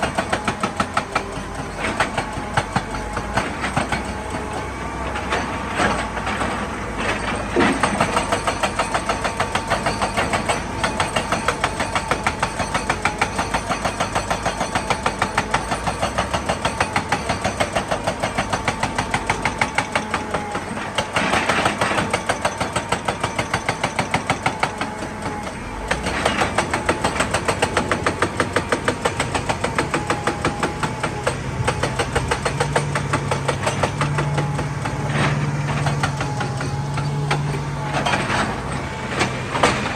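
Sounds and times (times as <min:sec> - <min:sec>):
diesel engine pulsing: 0:24.2 - 0:39.9
noisy engine surges: 0:24.8 - 0:39.9.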